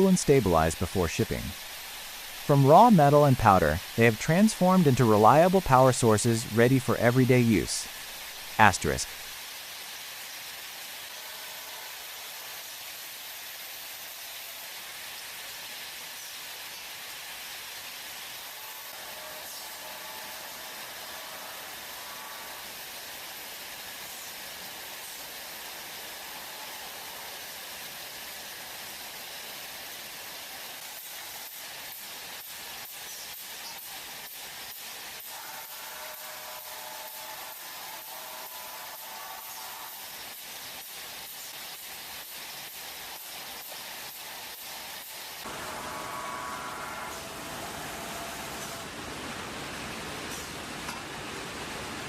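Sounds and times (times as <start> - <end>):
faint steady tones: 0.0 - 9.3, 45.4 - 50.9
steady hiss: 0.0 - 52.0.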